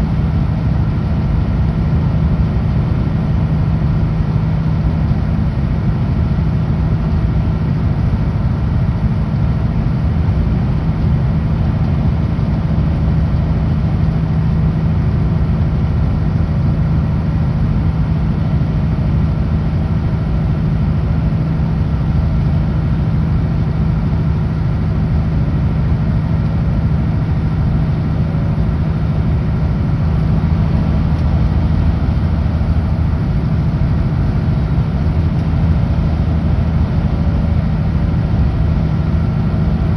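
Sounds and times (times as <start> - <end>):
diesel truck engine droning: 0.0 - 39.9
road noise: 17.6 - 39.9.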